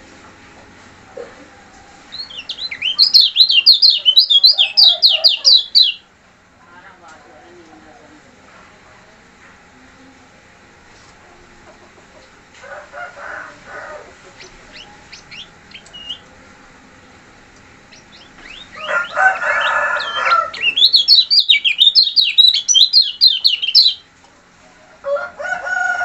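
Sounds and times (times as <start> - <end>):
high bird chirps: 2.1 - 6.0, 14.4 - 16.2, 17.9 - 24.1
lower-pitched bird calls: 2.1 - 6.1, 14.3 - 16.3, 17.8 - 24.1
rapid high bird twittering: 2.1 - 6.1, 14.3 - 16.2, 17.8 - 24.1.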